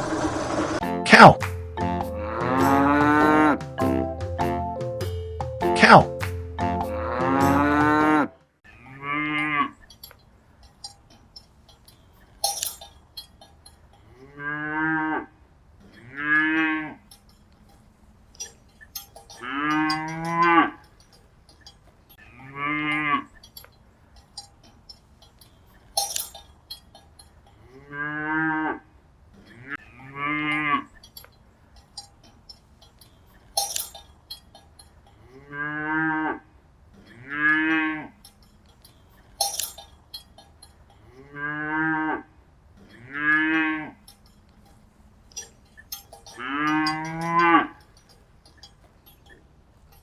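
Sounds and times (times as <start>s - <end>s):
cattle mooing: 2.0s - 3.6s, 7.0s - 9.8s, 41.1s - 42.3s, 46.3s - 47.8s
bell-like clanks: 5.0s - 6.6s, 9.8s - 14.0s, 17.1s - 21.9s, 22.9s - 27.4s, 30.5s - 35.1s, 38.2s - 41.0s, 44.0s - 50.0s.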